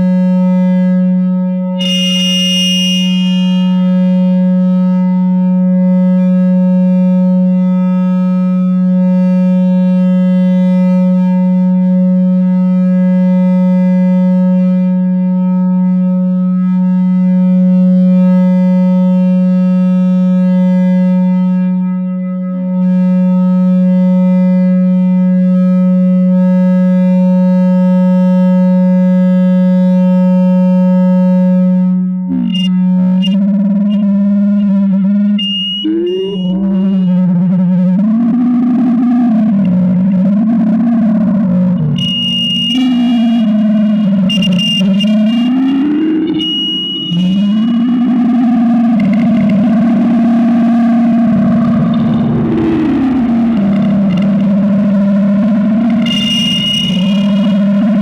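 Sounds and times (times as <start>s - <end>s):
sliding wavering feedback tones: 1.8s - 4.1s, 32.4s - 38.0s, 39.5s - 58.0s
feedback drone hum: 1.8s - 4.2s, 32.4s - 38.0s, 39.4s - 58.0s.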